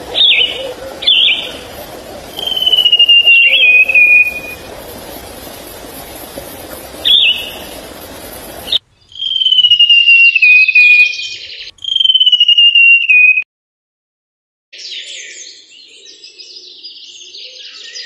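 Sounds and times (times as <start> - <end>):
songbird chirping and trilling: 0.0 - 4.8, 7.0 - 7.8, 8.6 - 13.4, 14.8 - 18.0
steady background hiss: 0.0 - 9.2.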